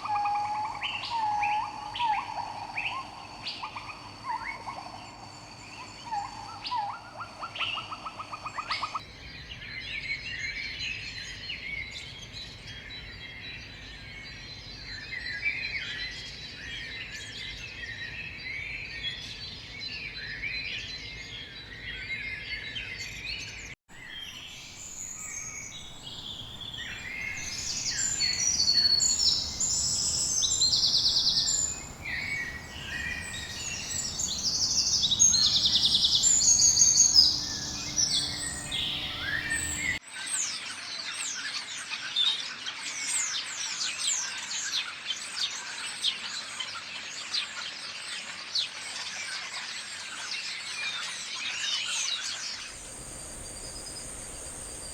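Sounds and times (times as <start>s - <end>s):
rapid high bird chirps: 23.9s - 40.0s, 52.6s - 54.9s
harsh buzzy bird chattering: 24.9s - 40.0s.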